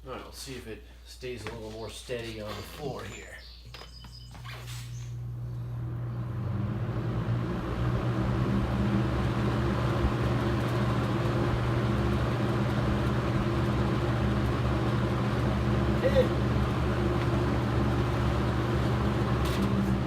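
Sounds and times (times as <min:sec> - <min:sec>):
box fan running: 0:02.8 - 0:20.0
fan shaking: 0:05.8 - 0:20.0.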